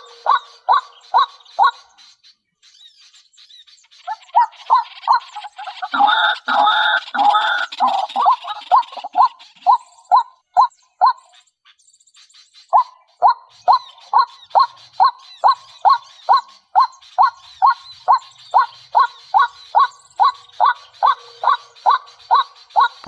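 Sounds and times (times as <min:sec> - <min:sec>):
bird calling: 0:00.0 - 0:23.0
faint high bird chirps: 0:00.0 - 0:23.0.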